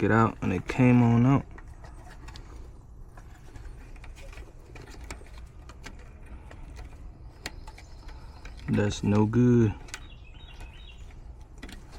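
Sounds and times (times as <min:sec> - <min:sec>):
hands handling wiring clicks: 0:00.6 - 0:11.9.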